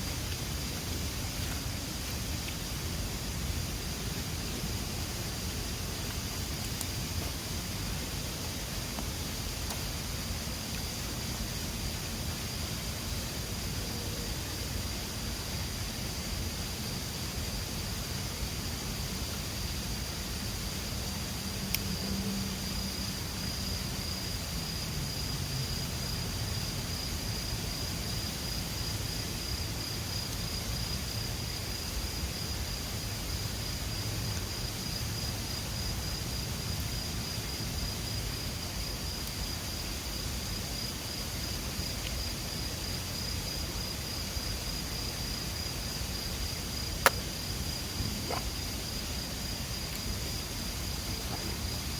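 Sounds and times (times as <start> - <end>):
faint click: 47.0 - 47.2.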